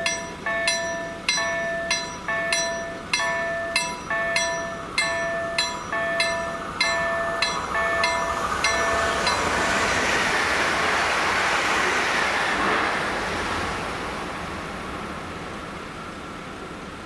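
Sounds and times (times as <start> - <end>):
level crossing warning bell: 0.0 - 9.7
electric train rushing past: 0.0 - 17.0.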